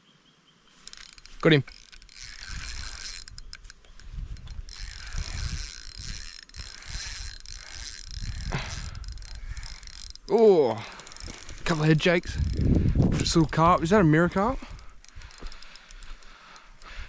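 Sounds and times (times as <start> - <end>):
low rumbling from rod handling: 0.8 - 10.3, 10.9 - 17.0
fishing reel ratcheting whir: 0.8 - 17.0.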